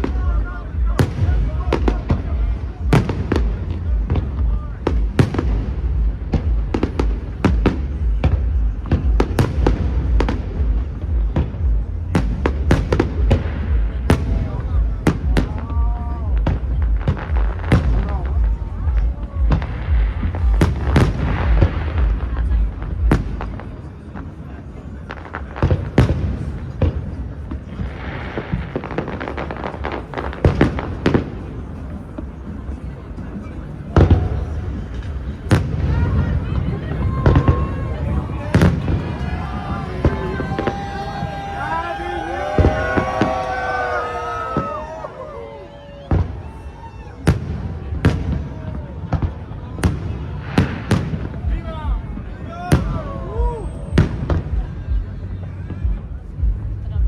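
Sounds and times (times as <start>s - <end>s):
low rumble: 0.0s - 23.9s
fireworks bangs: 0.0s - 57.0s.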